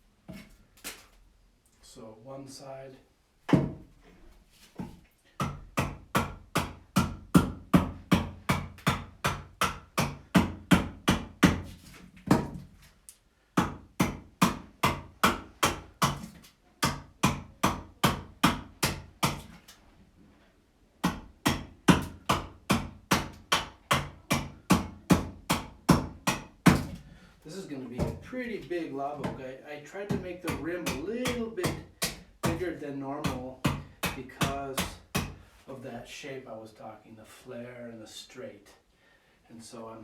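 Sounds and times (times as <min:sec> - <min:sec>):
axe chopping wood: 0:03.5 - 0:03.8, 0:05.4 - 0:12.7, 0:13.6 - 0:19.6, 0:21.0 - 0:27.0, 0:30.1 - 0:32.6, 0:33.2 - 0:35.4.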